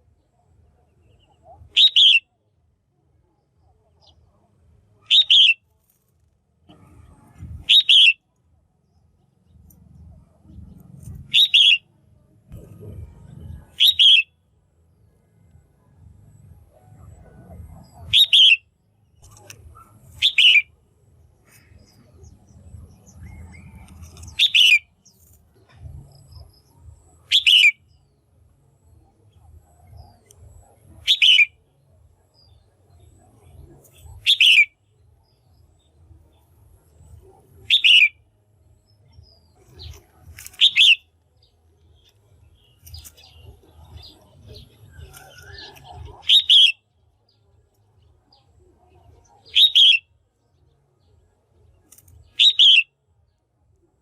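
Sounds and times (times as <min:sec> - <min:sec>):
bird calling: 0:01.1 - 0:02.2, 0:05.0 - 0:05.6, 0:07.6 - 0:08.3, 0:11.2 - 0:11.9, 0:13.6 - 0:14.4, 0:17.1 - 0:20.8, 0:21.4 - 0:25.1, 0:27.2 - 0:27.9, 0:30.0 - 0:31.6, 0:34.0 - 0:34.8, 0:37.5 - 0:38.2, 0:39.6 - 0:41.1, 0:42.0 - 0:46.9, 0:49.5 - 0:50.1, 0:52.3 - 0:52.9.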